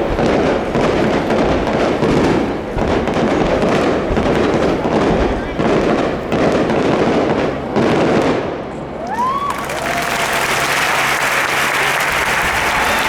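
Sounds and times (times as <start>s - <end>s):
fireworks bursting: 0.0s - 8.8s, 9.6s - 13.0s
crowd applauding and cheering: 9.0s - 13.0s.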